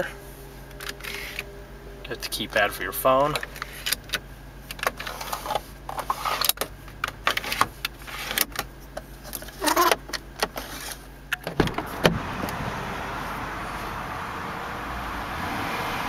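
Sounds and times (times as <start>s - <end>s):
low steady hum: 0.0s - 15.4s.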